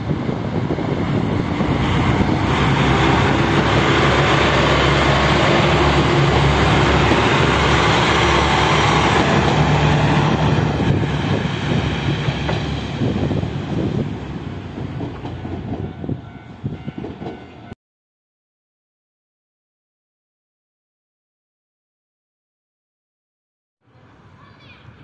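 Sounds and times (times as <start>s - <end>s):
passenger train rumbling past: 0.0s - 17.8s.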